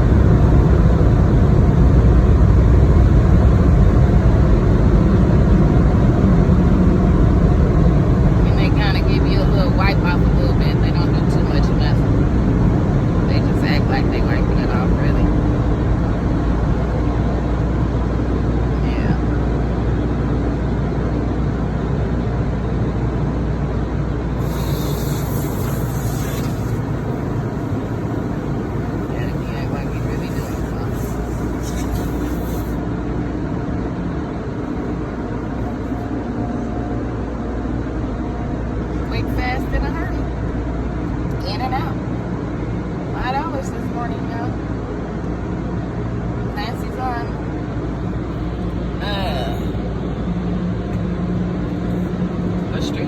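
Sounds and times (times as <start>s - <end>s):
truck engine rumbling: 24.1s - 32.9s
car wash air dryers blowing: 24.2s - 32.9s
hiss: 24.3s - 32.8s.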